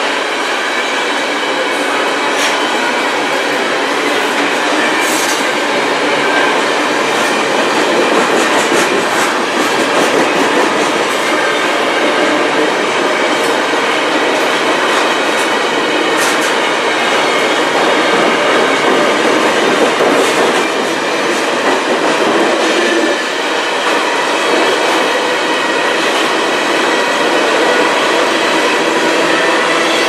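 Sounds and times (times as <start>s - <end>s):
freight train rolling past: 0.0s - 30.0s
wheels clicking on rails: 3.9s - 11.5s, 12.4s - 16.8s.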